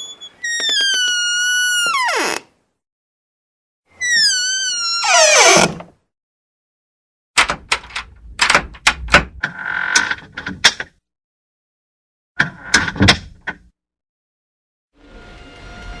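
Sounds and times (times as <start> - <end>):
door hinges creaking: 0.0 - 2.5, 4.0 - 5.9
door clicking and knocking: 7.4 - 9.4.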